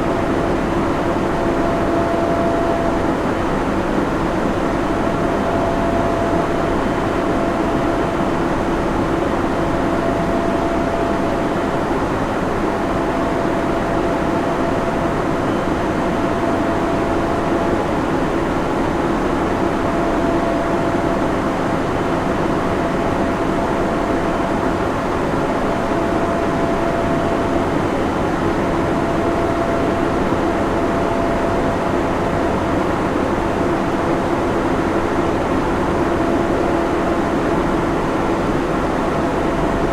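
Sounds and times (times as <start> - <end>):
cooling fans whirring: 0.0 - 39.9
faint high tone: 1.4 - 3.3.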